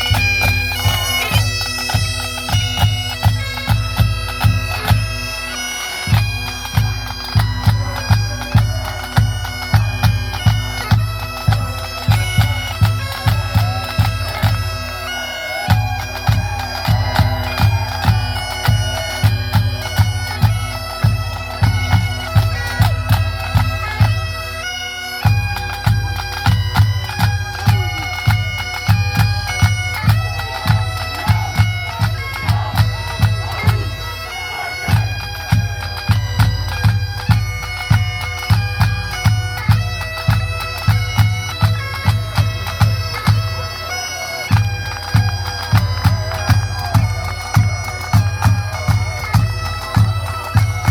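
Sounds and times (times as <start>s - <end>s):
bagpipe melody over drone: 0.0s - 50.9s
heavy drumbeat: 15.2s - 23.7s.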